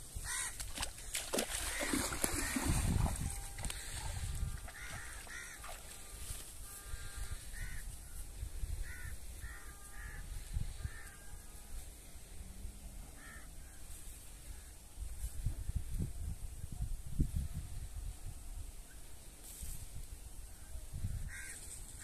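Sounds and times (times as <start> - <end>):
wading splashes in water: 0.4 - 6.8
bird calling: 1.6 - 6.0.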